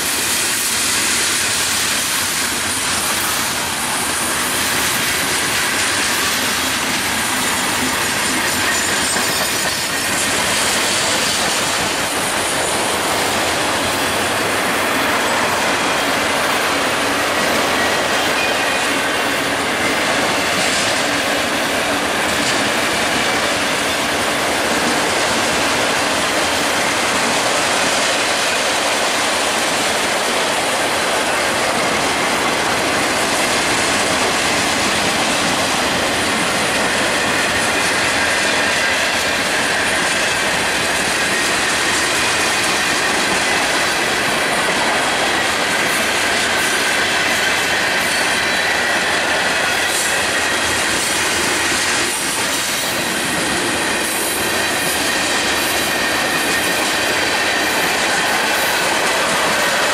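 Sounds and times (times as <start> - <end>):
train wheels rolling on rail: 0.0 - 59.9.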